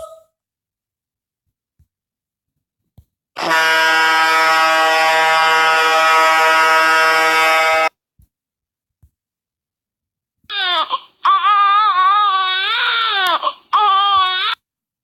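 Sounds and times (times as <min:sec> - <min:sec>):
low horn blast: 0:03.4 - 0:07.9.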